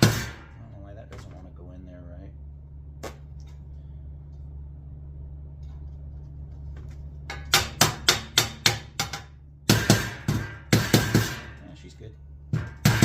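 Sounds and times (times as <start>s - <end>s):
hammer striking sheet metal: 0.0s - 0.6s, 7.3s - 11.7s, 12.5s - 13.0s.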